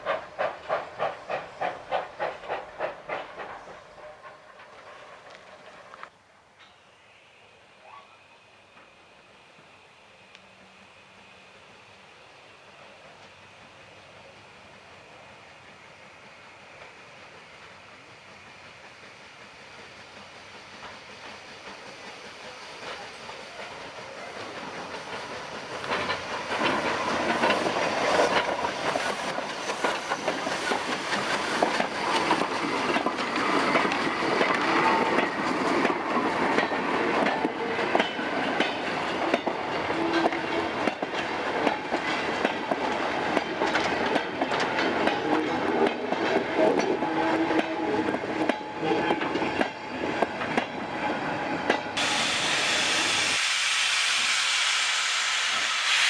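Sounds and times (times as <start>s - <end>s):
train wheels clicking over rail joints: 0.0s - 6.8s, 16.2s - 53.4s
train passing: 0.0s - 56.0s.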